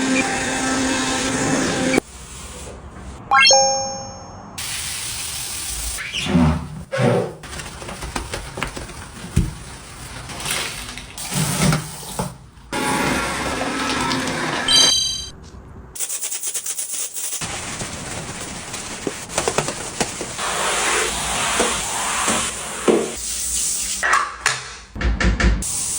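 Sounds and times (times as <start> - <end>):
short bright chime: 3.3 - 4.5
knocks and scrubbing: 6.6 - 14.7, 17.7 - 23.2
water running into sink: 10.3 - 14.7.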